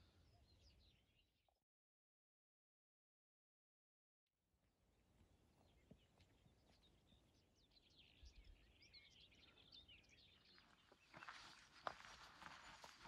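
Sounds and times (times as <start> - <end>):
small birds chirping: 0.0 - 1.4, 5.6 - 13.0
footsteps on dirt path: 10.1 - 13.0.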